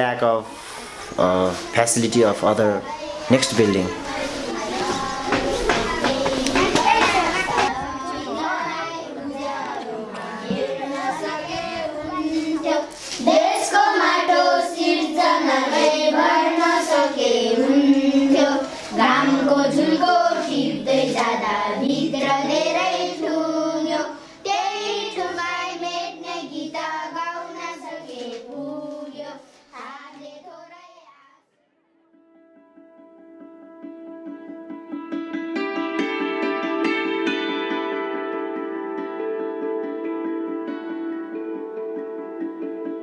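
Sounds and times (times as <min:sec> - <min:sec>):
children singing: 0:00.8 - 0:31.3
sharp claps: 0:05.3 - 0:07.7.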